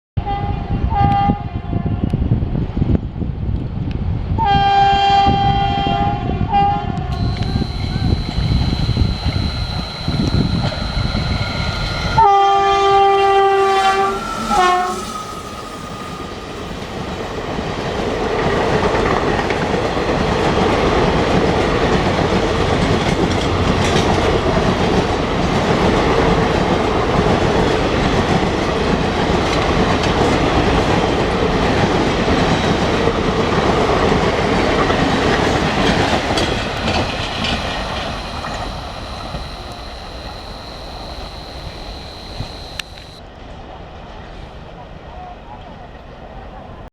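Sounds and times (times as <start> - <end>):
locomotive horn blasts: 7.1 - 16.5, 35.8 - 43.2.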